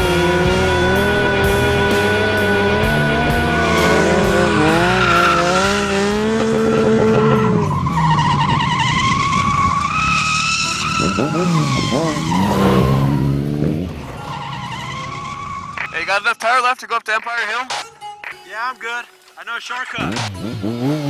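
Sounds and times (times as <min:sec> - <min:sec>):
engines revving: 0:00.0 - 0:16.3, 0:19.9 - 0:21.0
tyres squealing: 0:00.7 - 0:06.0.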